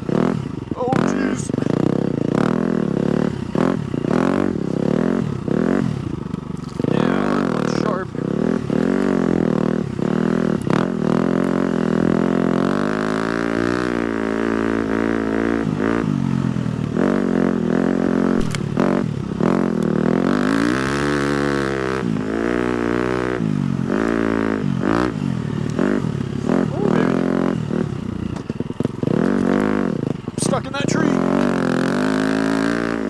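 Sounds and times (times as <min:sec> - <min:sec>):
dirt bike engine revving: 0:00.0 - 0:33.0
knocks and clatter from bike: 0:05.7 - 0:06.9, 0:18.4 - 0:20.0, 0:28.0 - 0:30.5.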